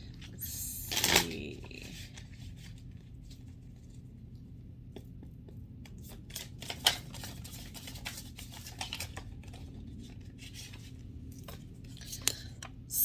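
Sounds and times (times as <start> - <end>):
cards being shuffled: 0.8 - 4.0, 5.9 - 11.7.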